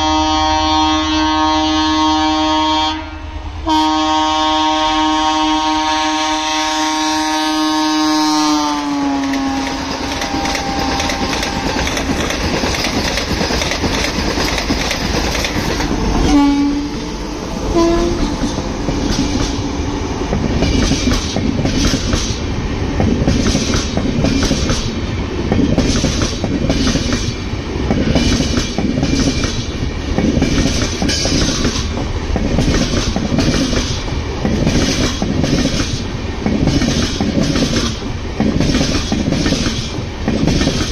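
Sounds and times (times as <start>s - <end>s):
train horn: 0.0s - 12.1s, 16.2s - 18.6s
electric trains passing: 0.0s - 40.9s
wheels clattering over rail joints: 9.3s - 16.4s.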